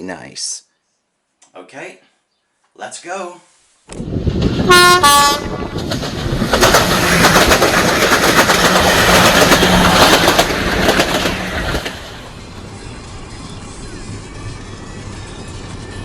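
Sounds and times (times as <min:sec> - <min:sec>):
train passing at speed: 0:04.0 - 0:16.0
wheels clicking over rail joints: 0:05.7 - 0:12.3.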